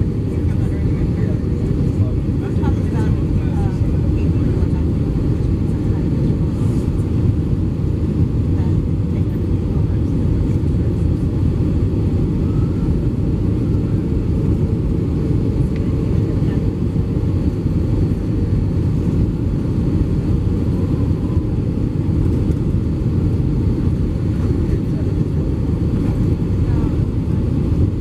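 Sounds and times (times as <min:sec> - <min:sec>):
aircraft engine rumble: 0:00.0 - 0:28.0.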